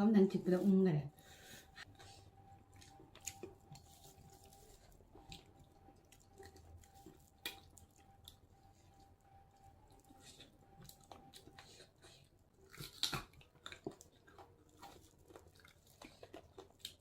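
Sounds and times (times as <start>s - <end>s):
faint steady tone: 0.2s - 12.6s
person eating: 1.3s - 8.7s, 9.9s - 17.0s.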